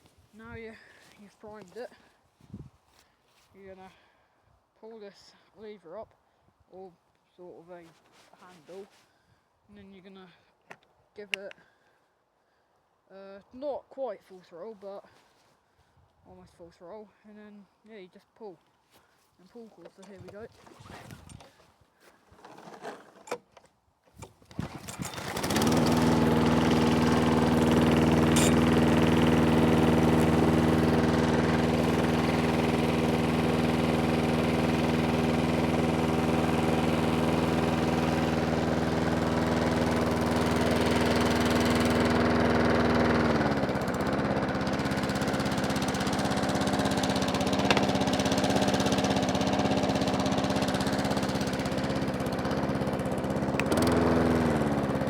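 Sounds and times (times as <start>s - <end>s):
recoil cord rattling: 22.3s - 42.1s
lawnmower engine running: 24.2s - 55.0s.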